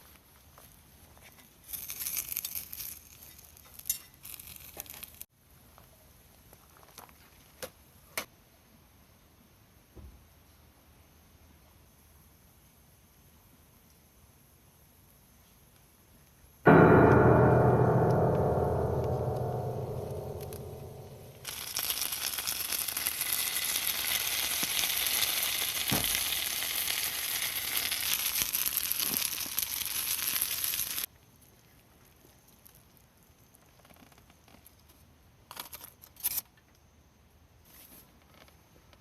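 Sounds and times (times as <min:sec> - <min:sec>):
food sizzling over fire: 0:01.6 - 0:05.2, 0:21.4 - 0:31.1
fire crackles: 0:21.4 - 0:31.1.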